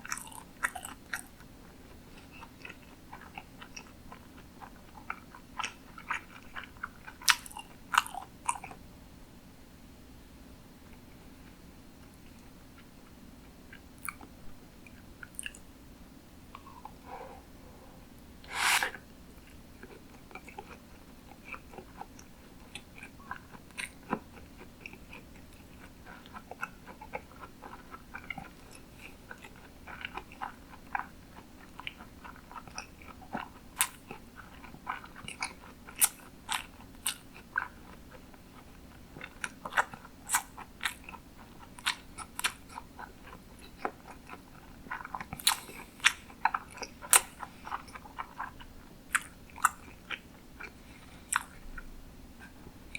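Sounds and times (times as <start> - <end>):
wet chewing: 0.0 - 1.5, 2.2 - 8.8, 14.9 - 15.6, 18.4 - 51.6.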